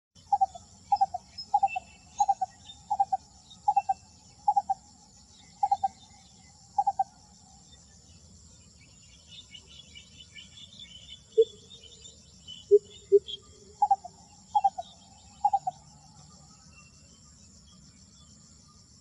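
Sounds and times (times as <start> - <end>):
bird calling: 0.2 - 4.8, 5.5 - 7.2, 9.4 - 16.3
high pulsing insect drone: 0.2 - 19.0.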